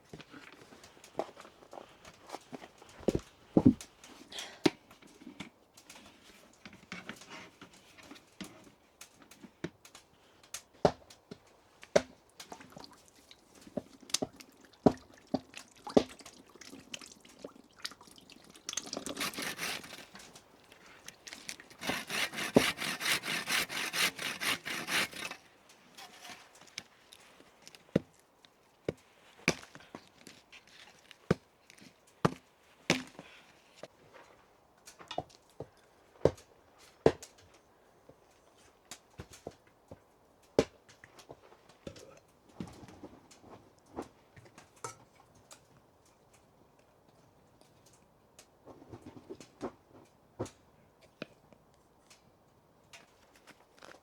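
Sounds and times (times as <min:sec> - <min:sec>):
objects being handled: 0:18.6 - 0:33.9, 0:53.0 - 0:54.0
fast even scraping: 0:19.0 - 0:20.3, 0:21.3 - 0:26.5.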